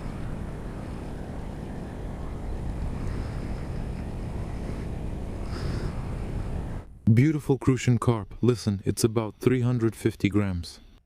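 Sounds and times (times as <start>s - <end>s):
wind buffeting microphone: 0.0s - 7.1s.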